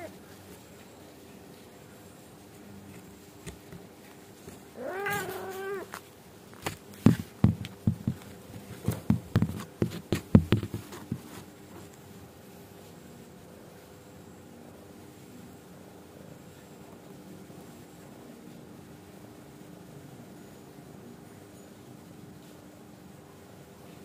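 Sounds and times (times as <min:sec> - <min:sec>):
cat meowing: 0:04.8 - 0:06.0.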